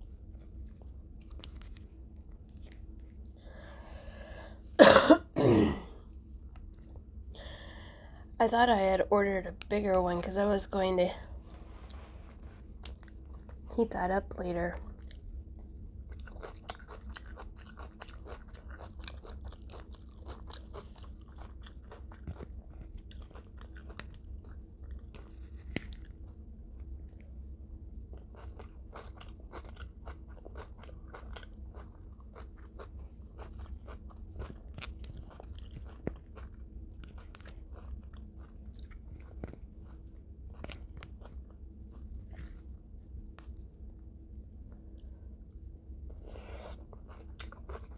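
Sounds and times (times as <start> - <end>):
steady low hum: 0.0 - 47.9
crunching fried chicken: 14.8 - 42.7, 46.5 - 47.9.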